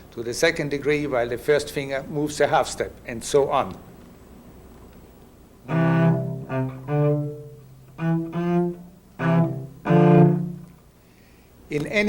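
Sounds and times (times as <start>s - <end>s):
cello bowed double stops: 5.7s - 10.9s.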